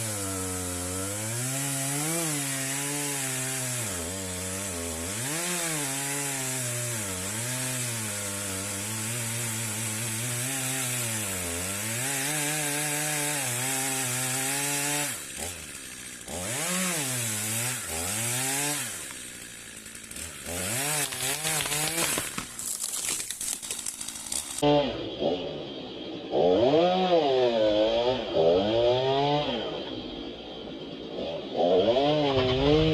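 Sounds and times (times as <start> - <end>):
chainsaw cutting into tree trunk: 0.0 - 32.9.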